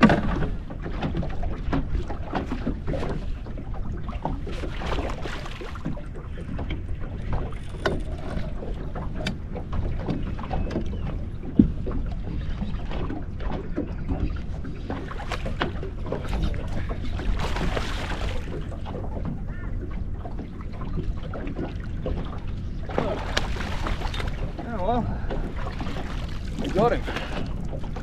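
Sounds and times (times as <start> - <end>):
knocks on boat: 0.0 - 3.3, 4.2 - 19.7
water slapping boat hull: 0.0 - 28.0.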